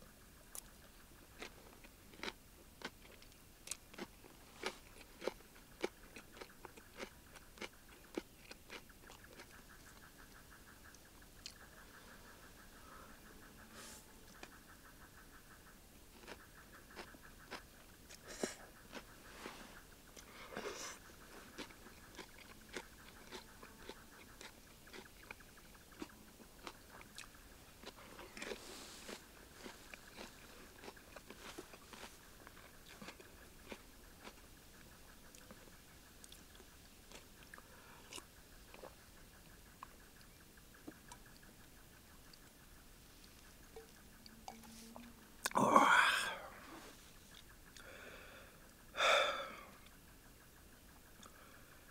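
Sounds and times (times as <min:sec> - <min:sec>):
chewing crunchy food: 0:00.4 - 0:46.5, 0:51.0 - 0:51.6.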